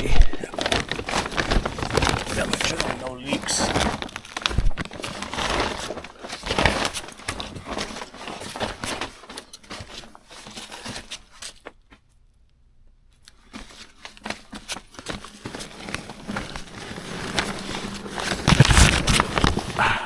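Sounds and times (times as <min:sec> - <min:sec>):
rustling handling noise: 0:00.0 - 0:12.4, 0:13.1 - 0:20.0.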